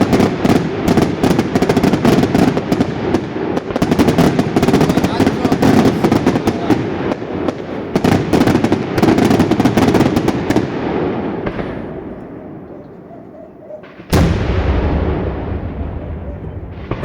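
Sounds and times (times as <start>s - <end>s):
fireworks sharp reports: 0.0s - 17.0s
low rumbling echo: 10.2s - 17.0s
heavy firework bang: 13.9s - 17.0s.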